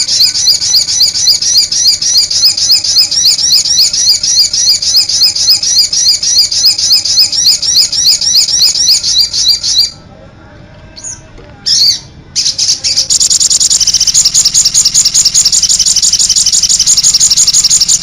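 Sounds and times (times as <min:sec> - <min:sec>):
songbird singing high notes: 0:11.0 - 0:18.0.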